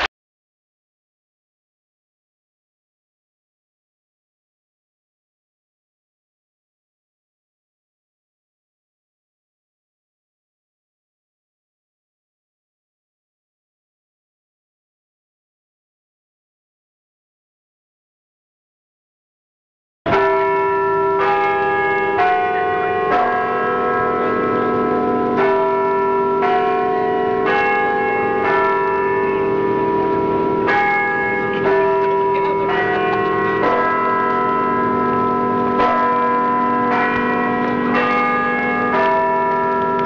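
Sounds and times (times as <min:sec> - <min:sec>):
church bells ringing: 0:20.1 - 0:40.0.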